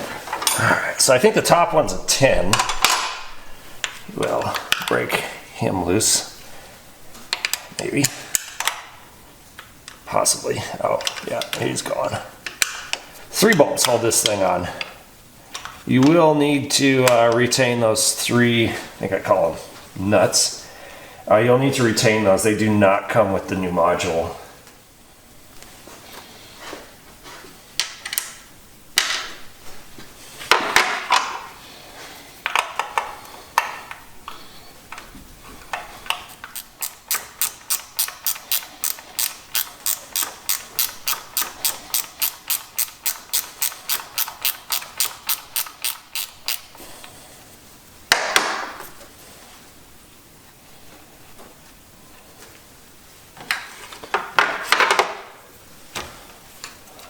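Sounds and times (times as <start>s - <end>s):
ratchet wrench clicking: 36.3s - 46.7s
tools and metal parts clinking: 36.4s - 46.7s.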